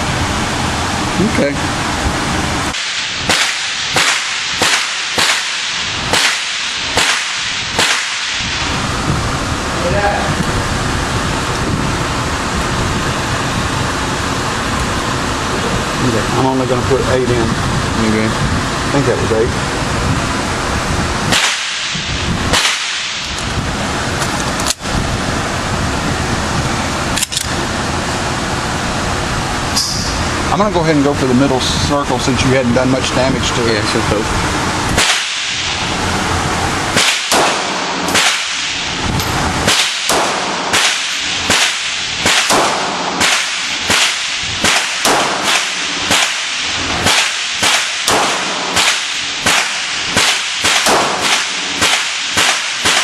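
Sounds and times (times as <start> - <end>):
steady rushing background noise: 0.0 - 53.0
gunshots: 2.7 - 8.7, 21.3 - 23.3, 35.0 - 35.8, 36.9 - 39.0, 39.6 - 53.0.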